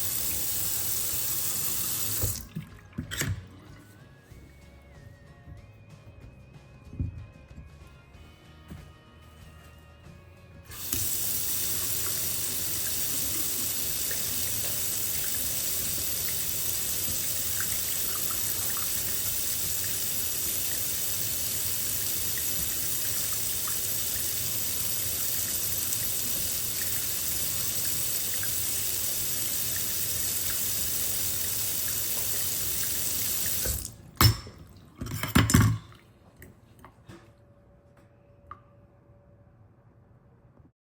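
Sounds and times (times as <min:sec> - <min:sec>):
tap water running into sink: 0:00.0 - 0:03.5, 0:10.7 - 0:35.8.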